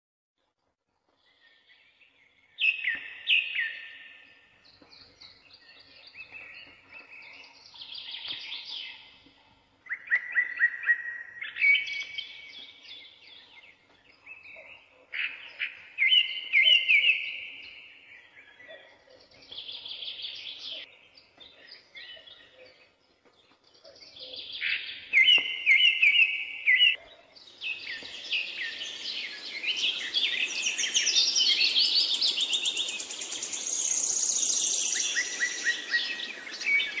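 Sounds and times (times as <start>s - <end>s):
birds singing: 1.2s - 37.0s.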